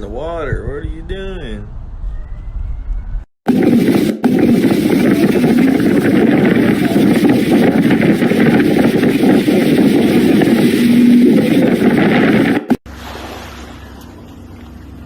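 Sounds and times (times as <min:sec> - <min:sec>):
loud rushing noise: 0:03.5 - 0:12.8
motorboat engine running: 0:03.5 - 0:15.0.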